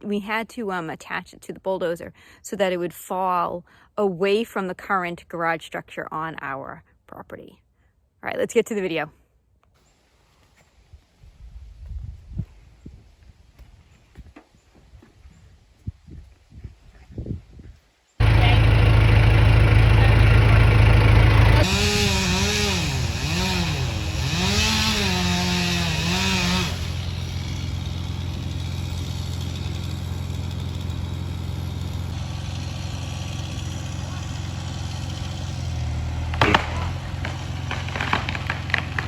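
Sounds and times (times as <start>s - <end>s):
chainsaw cutting wood: 18.2s - 39.0s
tree cracking and splintering: 20.8s - 39.0s.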